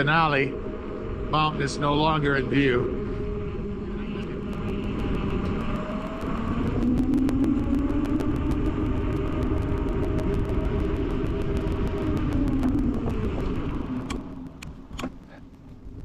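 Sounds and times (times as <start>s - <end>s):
low rumble with hum: 0.0s - 16.0s
wind noise: 0.0s - 16.0s
rapid faint ticks: 4.2s - 16.0s.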